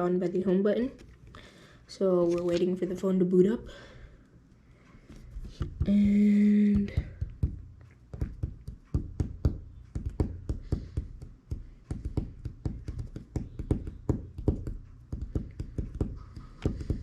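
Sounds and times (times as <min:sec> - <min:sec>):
hands tapping phone and objects: 0:04.9 - 0:17.0.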